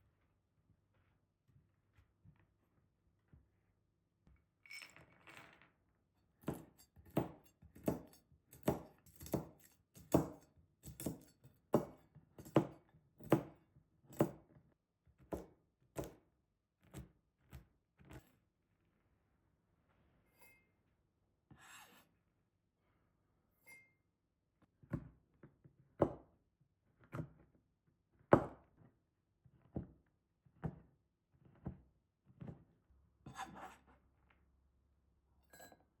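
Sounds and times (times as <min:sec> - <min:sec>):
knife chopping on cutting board: 0:06.4 - 0:13.5, 0:15.3 - 0:16.2.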